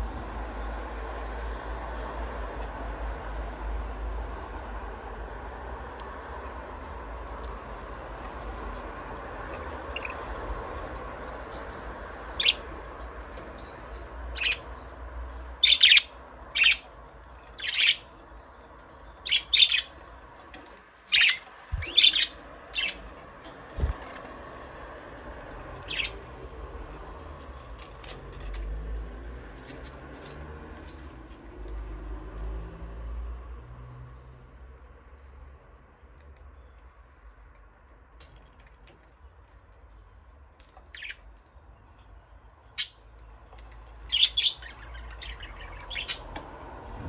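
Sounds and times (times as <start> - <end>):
budgerigars chirping: 12.4 - 12.7, 14.3 - 14.7, 15.6 - 16.9, 17.6 - 18.1, 19.1 - 20.0, 21.1 - 23.0, 25.8 - 26.2, 40.9 - 41.2, 42.7 - 43.0, 44.1 - 46.4.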